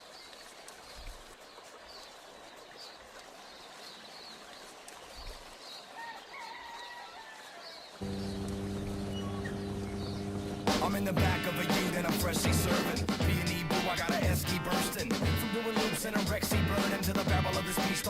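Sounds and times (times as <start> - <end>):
birds chirping: 7.6 - 15.4
faint outdoor background: 7.6 - 18.0
steady low hum: 8.0 - 13.4.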